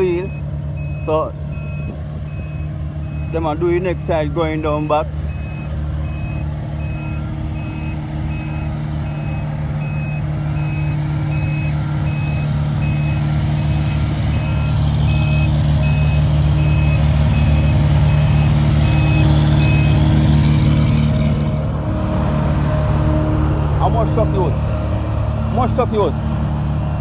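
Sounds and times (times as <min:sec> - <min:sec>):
diesel engine running: 0:00.0 - 0:27.0
reversing alarm beeping: 0:00.1 - 0:20.4.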